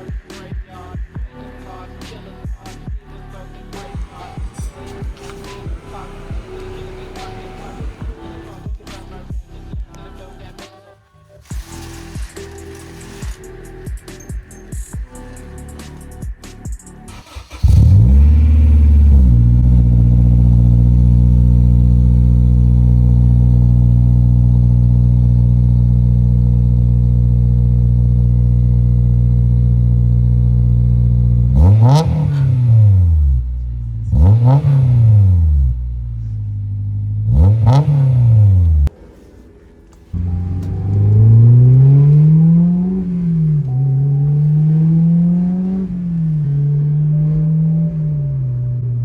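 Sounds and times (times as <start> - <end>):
car engine starting and idling: 3.7 - 9.2, 17.1 - 39.0, 40.0 - 49.0
engine revving: 3.8 - 9.0, 17.1 - 38.9, 40.2 - 49.0.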